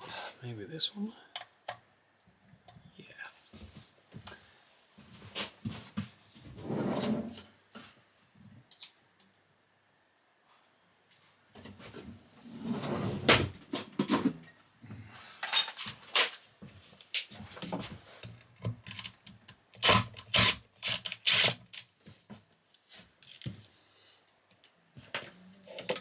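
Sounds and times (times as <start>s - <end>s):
tools clattering on workbench: 15.4s - 16.0s.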